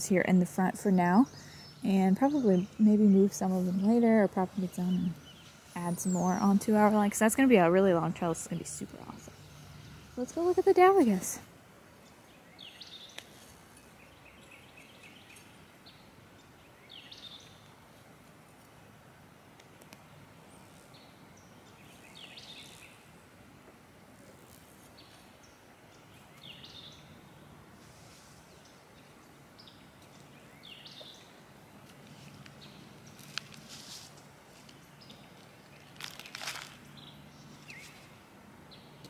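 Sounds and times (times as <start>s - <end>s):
bird chirping: 12.0s - 17.7s, 20.5s - 23.1s, 25.0s - 27.5s, 28.5s - 31.4s, 36.9s - 39.0s
brief rustle: 31.8s - 36.9s.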